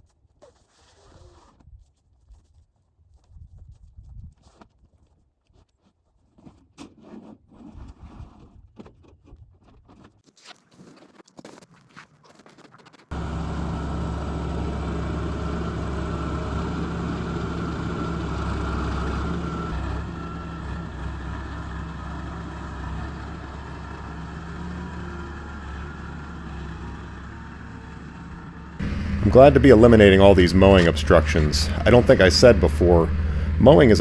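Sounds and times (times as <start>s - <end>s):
excavator diesel engine running: 13.1s - 34.0s.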